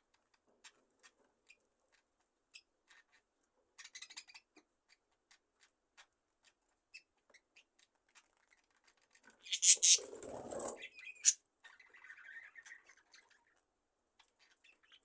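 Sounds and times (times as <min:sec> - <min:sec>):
faint bird clicks and scratches: 0:00.1 - 0:11.8.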